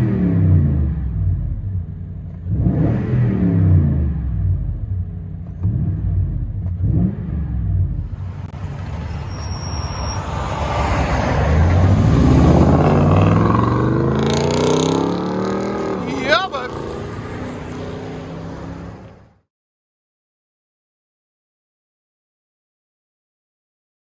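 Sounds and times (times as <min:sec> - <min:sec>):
engine accelerating hard: 0:00.0 - 0:19.2
truck engine revving: 0:05.6 - 0:19.2.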